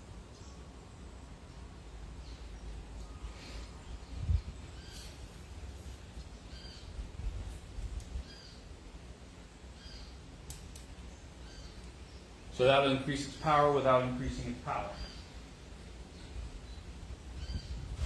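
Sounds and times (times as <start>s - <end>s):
short bird calls: 2.2s - 5.5s.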